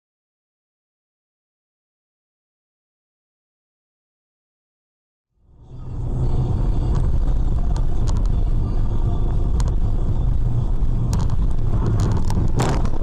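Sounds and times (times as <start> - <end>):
car engine and road noise: 5.3 - 13.0.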